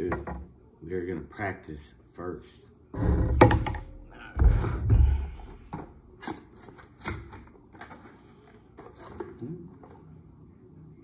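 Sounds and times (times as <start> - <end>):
low thump: 3.0 - 6.0.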